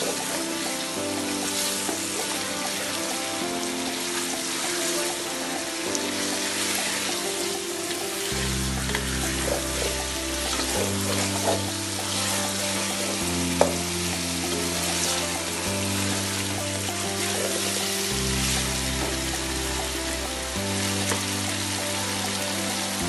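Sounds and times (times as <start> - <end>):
chicken sizzling in oil: 0.0 - 23.0
soft background music: 0.0 - 23.0
wooden spoon scraping a pan: 7.9 - 20.0.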